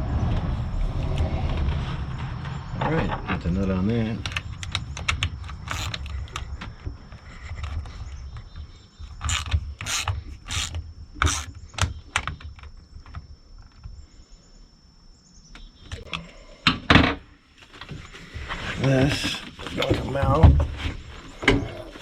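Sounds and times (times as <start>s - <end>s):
ratchet wrench clicking: 5.5s - 6.4s, 9.2s - 11.5s.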